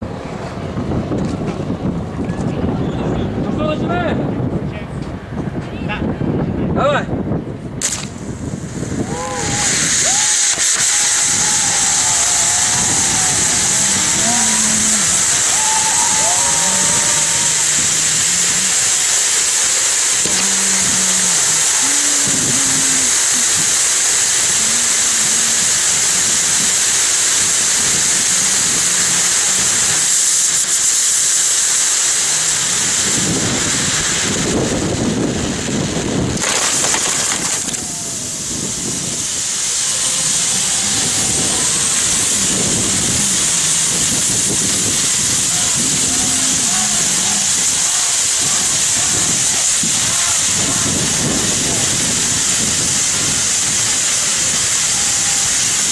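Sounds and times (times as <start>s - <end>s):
firework fountains hissing: 7.6s - 55.9s
faint voices: 9.1s - 18.9s, 45.5s - 51.2s.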